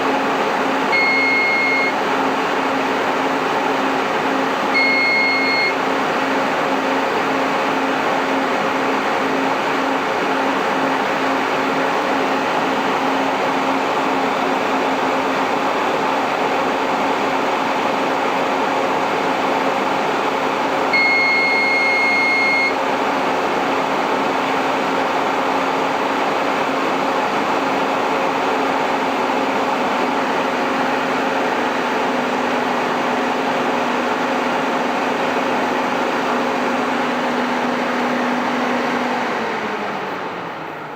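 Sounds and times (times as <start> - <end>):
cooling fans humming: 0.0 - 40.9
long electronic beep: 0.9 - 2.0, 4.7 - 5.8, 20.9 - 22.8.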